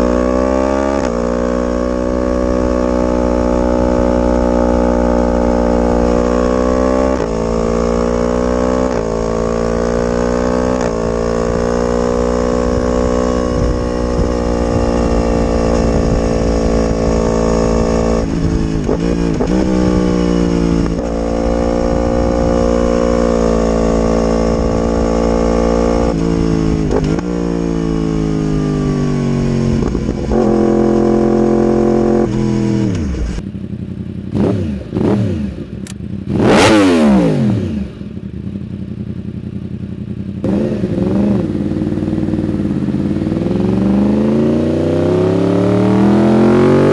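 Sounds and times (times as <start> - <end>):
sport bike accelerating: 0.0 - 46.9
motorcycle throttle blips: 1.0 - 23.0, 31.6 - 46.9.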